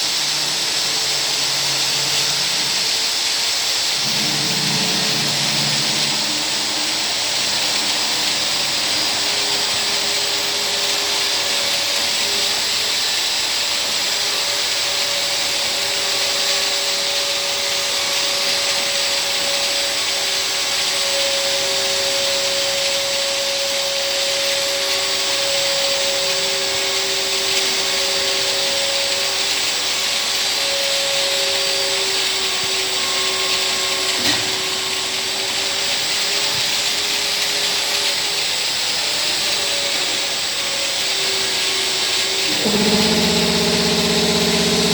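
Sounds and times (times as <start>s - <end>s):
washing machine hissing: 0.0s - 17.9s, 39.0s - 44.9s
held tones from machine drive: 42.5s - 44.9s.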